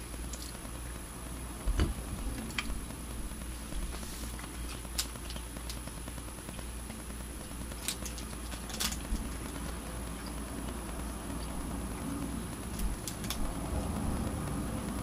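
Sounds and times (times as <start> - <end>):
low room noise: 0.0 - 15.0
person chewing toffee: 3.8 - 5.9.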